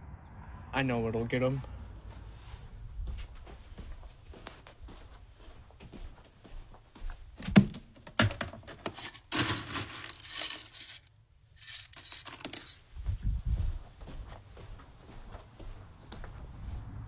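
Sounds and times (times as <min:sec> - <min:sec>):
low bumps: 0:00.0 - 0:04.9
plastic bag crinkling: 0:08.9 - 0:12.8.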